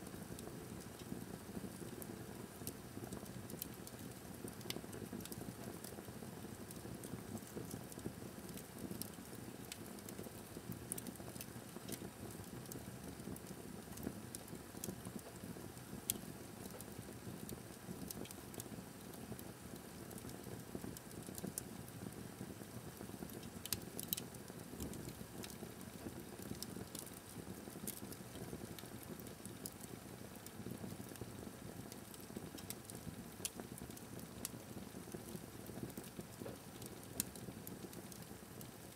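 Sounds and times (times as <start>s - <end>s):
fire crackling in a fireplace: 0.0s - 38.9s.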